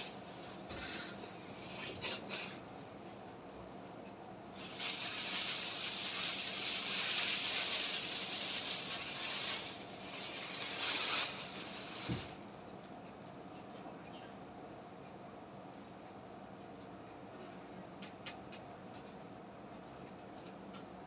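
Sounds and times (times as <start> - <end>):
packaging rustling: 4.6 - 12.4.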